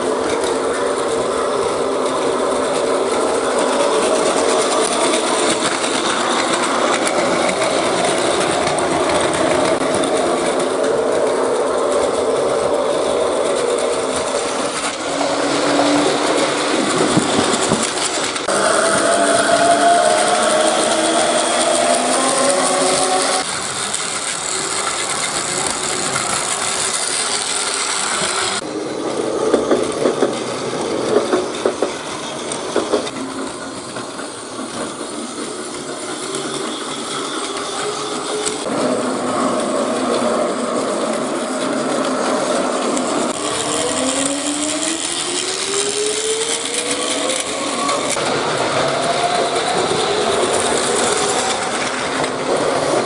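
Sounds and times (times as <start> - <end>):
toy train motors whirring: 0.0 - 53.0
rising motor whine: 3.4 - 23.5.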